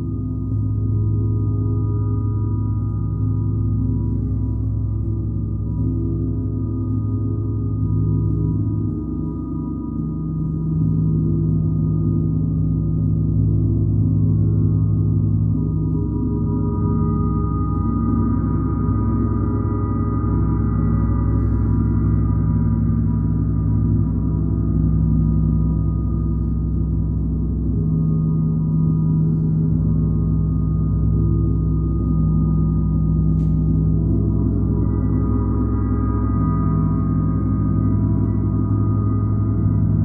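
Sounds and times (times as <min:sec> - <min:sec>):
gong sustained tones: 0:00.0 - 0:40.0.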